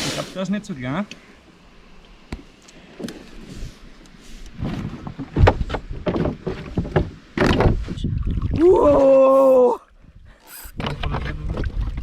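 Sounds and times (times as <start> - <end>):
water sounds: 8.0 - 12.0.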